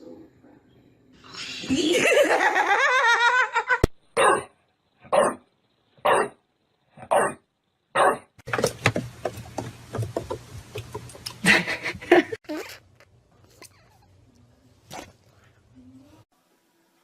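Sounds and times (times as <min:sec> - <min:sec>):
dog barking: 0:04.2 - 0:04.5, 0:05.1 - 0:05.4, 0:06.0 - 0:06.4, 0:07.0 - 0:07.4, 0:08.0 - 0:08.3.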